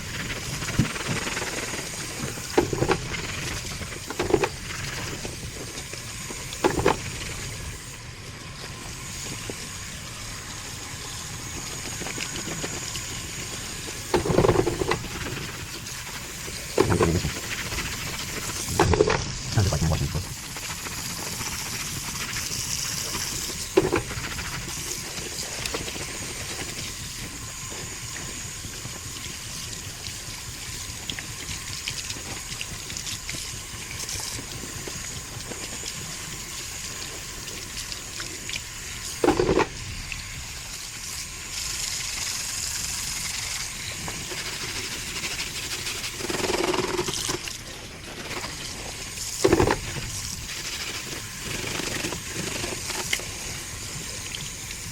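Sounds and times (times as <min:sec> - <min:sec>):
air filter sloshed in water: 0:13.0 - 0:21.0, 0:23.3 - 0:24.6, 0:44.4 - 0:53.2.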